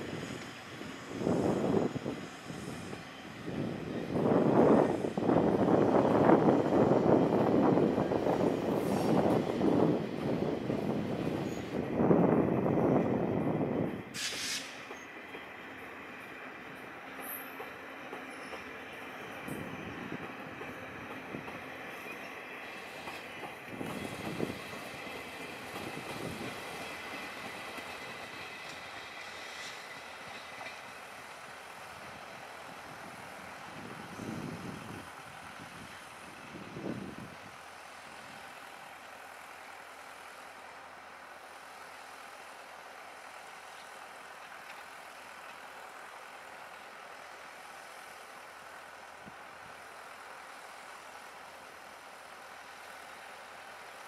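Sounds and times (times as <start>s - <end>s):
passenger train rolling over switches: 3.5s - 33.8s
faint wheel squeal: 11.4s - 11.8s, 14.2s - 15.2s.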